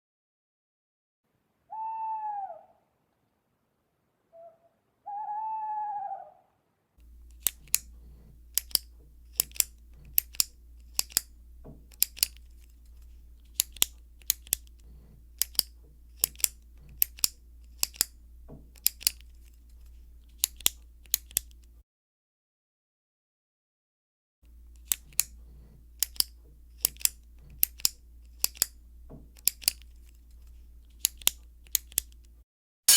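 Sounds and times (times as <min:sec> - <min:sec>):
owl hooting: 0:01.7 - 0:03.1, 0:04.3 - 0:06.7
scissors snipping: 0:07.0 - 0:21.7, 0:24.7 - 0:32.3
low hum: 0:07.0 - 0:21.8.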